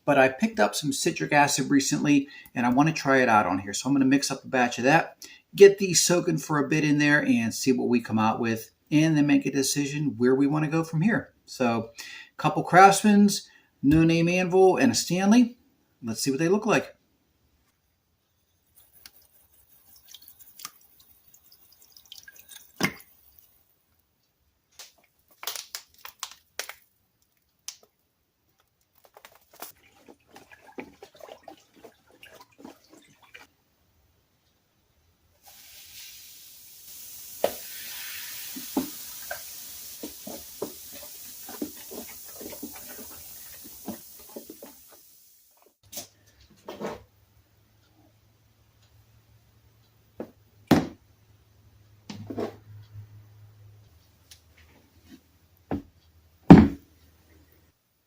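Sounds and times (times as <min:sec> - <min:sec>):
running water: 0:18.8 - 0:23.8, 0:29.1 - 0:33.5, 0:35.5 - 0:45.4
containers knocking and clattering: 0:29.2 - 0:33.5, 0:38.6 - 0:44.9.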